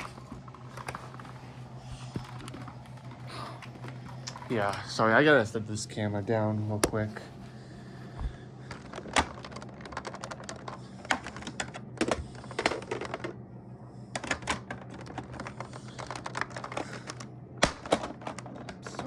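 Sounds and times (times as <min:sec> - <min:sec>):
plastic parts clicking and rattling: 0:00.0 - 0:05.1, 0:08.2 - 0:13.4, 0:14.1 - 0:19.0
low steady hum: 0:00.0 - 0:19.0.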